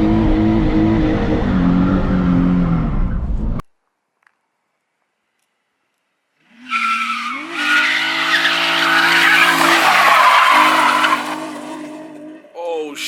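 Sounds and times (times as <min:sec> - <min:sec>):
car engine revving: 0:00.0 - 0:03.6, 0:06.4 - 0:12.5
tyres squealing: 0:06.7 - 0:12.3.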